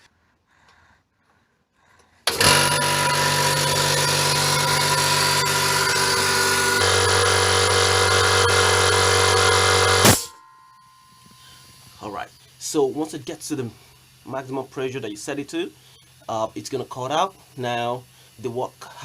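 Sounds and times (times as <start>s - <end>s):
air compressor running: 2.2s - 10.4s.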